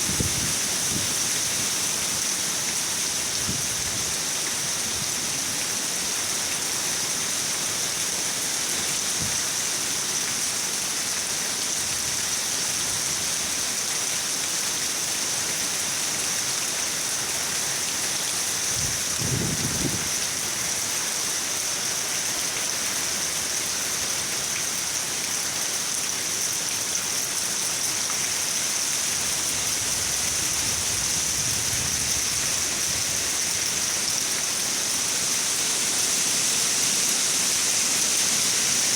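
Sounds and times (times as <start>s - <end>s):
dense rain hiss: 0.0s - 38.9s.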